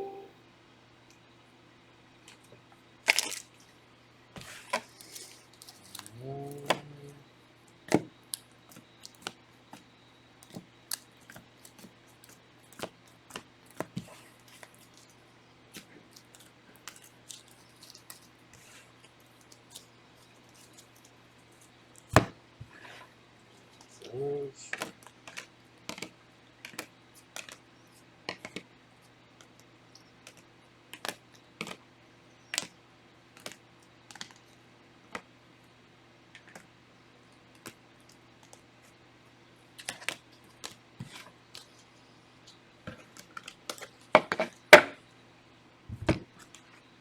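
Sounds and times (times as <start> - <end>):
short hum: 0.0 - 0.3.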